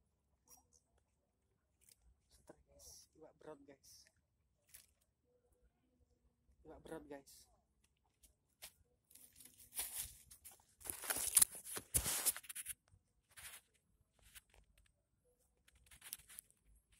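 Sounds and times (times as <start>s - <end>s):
rustling and scraping: 8.2s - 15.0s, 15.7s - 16.9s.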